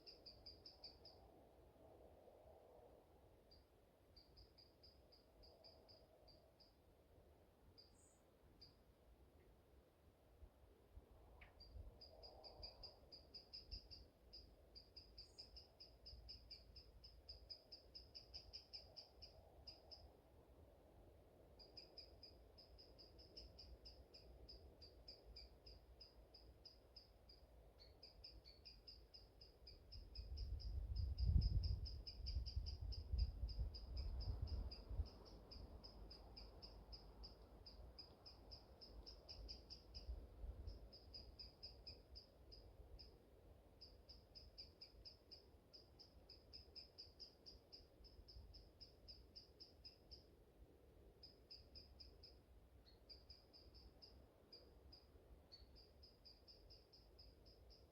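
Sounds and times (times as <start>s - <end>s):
wind rumbling on microphone: 30.2s - 35.2s.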